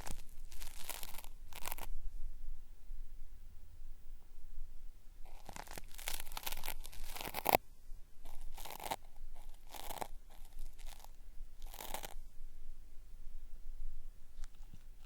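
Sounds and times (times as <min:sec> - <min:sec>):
cotton swab rubbing microphone: 0:00.0 - 0:02.0, 0:05.2 - 0:07.6, 0:08.2 - 0:12.2.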